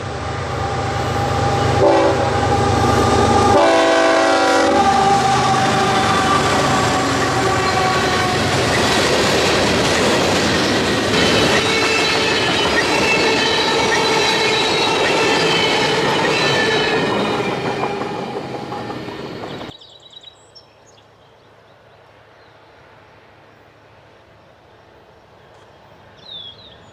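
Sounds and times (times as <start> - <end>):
train rolling past: 0.0 - 19.8
wheels squealing: 4.7 - 19.7.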